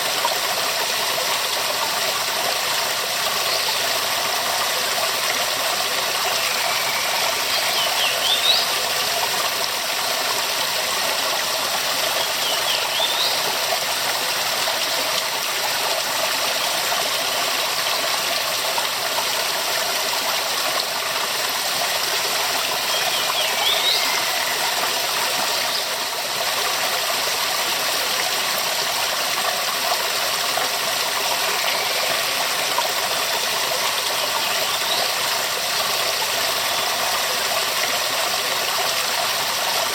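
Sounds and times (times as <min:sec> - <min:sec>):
waterfall rushing: 0:05.8 - 0:15.9, 0:20.8 - 0:25.9.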